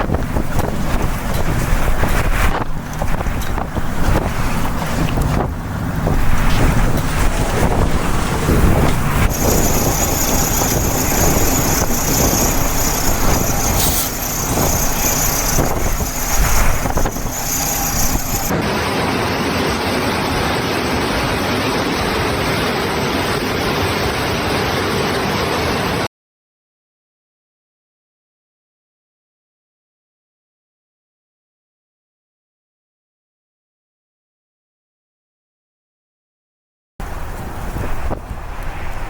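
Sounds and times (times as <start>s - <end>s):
strong wind: 0.0s - 26.1s, 37.0s - 39.0s
heavy low rumble: 0.1s - 18.9s
heavy rain: 0.3s - 20.3s.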